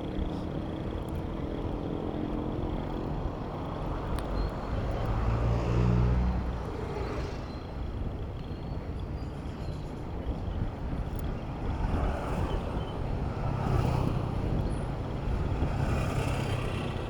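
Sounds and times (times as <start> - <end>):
road traffic noise: 0.0 - 17.0
vehicle engine passing close: 4.6 - 7.7, 11.9 - 17.0.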